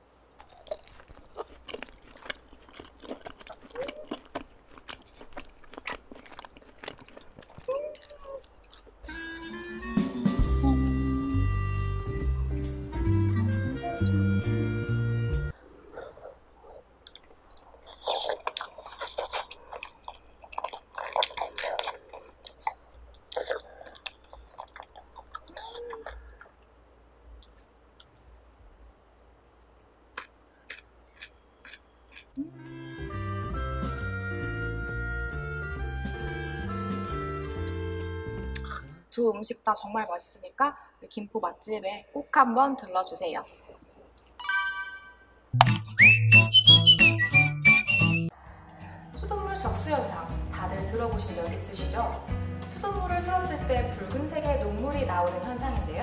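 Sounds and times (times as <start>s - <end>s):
wet crunching chewing: 0.4s - 9.2s, 17.0s - 26.7s, 30.2s - 32.4s
wet mouth clicks and smacks: 17.0s - 26.7s, 38.6s - 38.8s, 45.6s - 48.2s.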